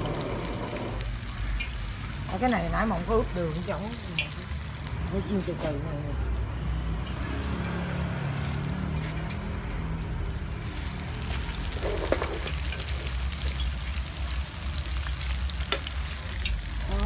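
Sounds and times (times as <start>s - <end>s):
tofu sizzling in hot oil: 0.0s - 5.2s, 10.3s - 17.0s
metal spatula scraping wok: 11.4s - 13.7s.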